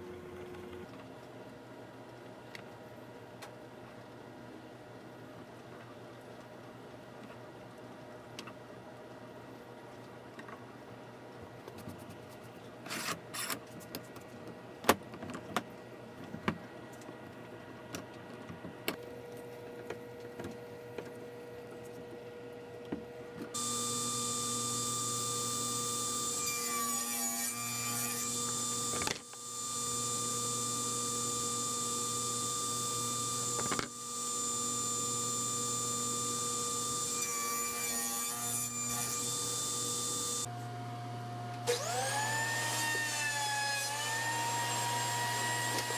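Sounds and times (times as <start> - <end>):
electric woodworking power tool running: 23.6 - 37.9, 38.9 - 40.5.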